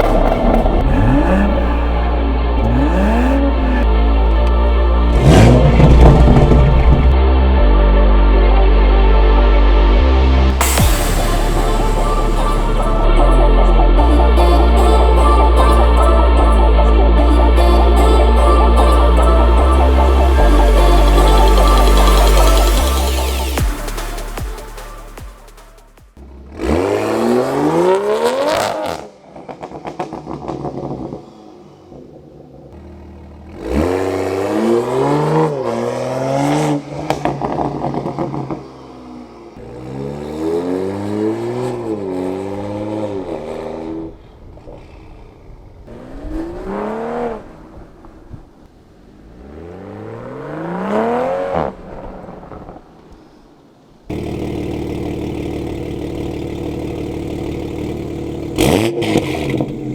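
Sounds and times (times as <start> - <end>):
car engine revving: 0.0 - 7.2, 10.5 - 31.0, 32.8 - 37.0, 54.1 - 59.9.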